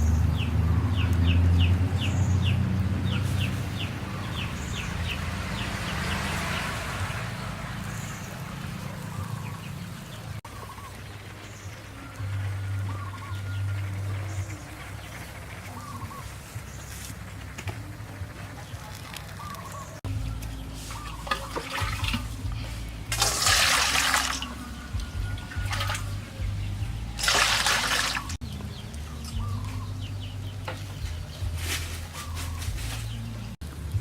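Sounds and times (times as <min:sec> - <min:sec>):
faint bird chirps: 0:19.4 - 0:22.9
water pouring and splashing: 0:20.8 - 0:26.2, 0:27.2 - 0:28.4.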